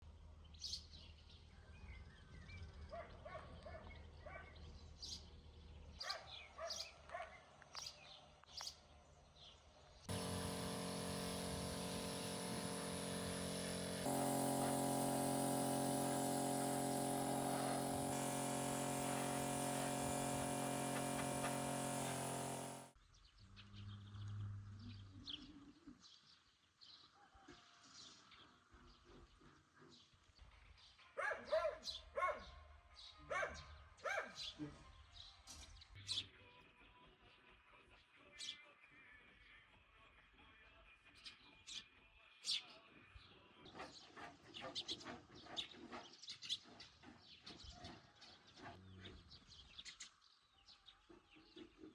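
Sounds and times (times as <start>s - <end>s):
loud held tones: 10.1s - 22.9s.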